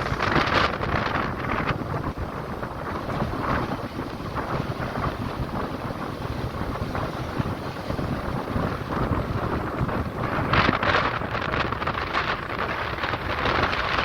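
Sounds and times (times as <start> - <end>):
surf washing on shore: 0.0 - 14.0
wind buffeting microphone: 0.0 - 14.0.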